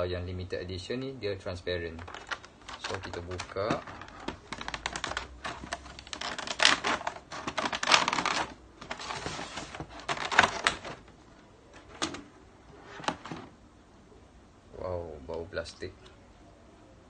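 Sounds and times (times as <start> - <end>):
packaging crackling and clicking: 1.9 - 12.3, 12.9 - 13.5.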